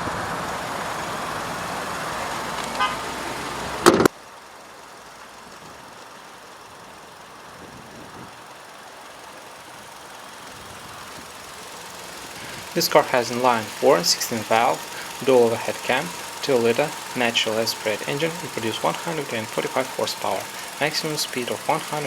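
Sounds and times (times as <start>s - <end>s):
road traffic: 0.0s - 22.0s
car horn toot: 2.8s - 3.0s.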